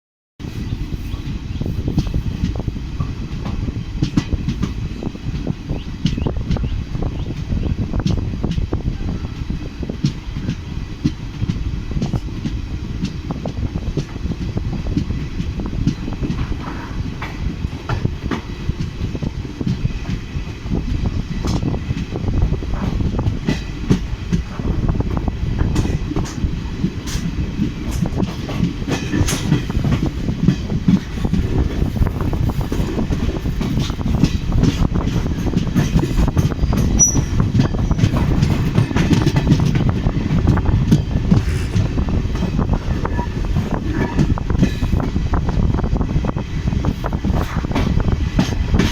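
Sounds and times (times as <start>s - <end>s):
train rumble: 0.4s - 48.9s
wheel clicks over rail joints: 22.7s - 45.0s.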